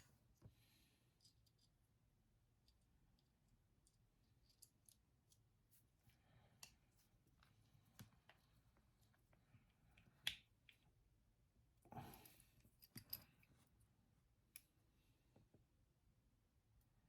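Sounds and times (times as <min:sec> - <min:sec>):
faint clicks of small parts: 0:01.1 - 0:01.8, 0:02.6 - 0:10.9, 0:11.9 - 0:13.8.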